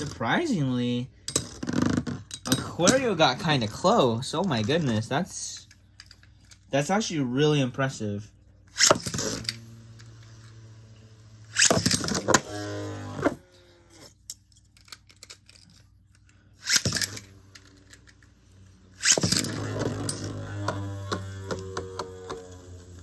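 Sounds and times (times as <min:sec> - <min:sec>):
spinning tops whirring: 0:08.7 - 0:14.2, 0:16.6 - 0:23.0.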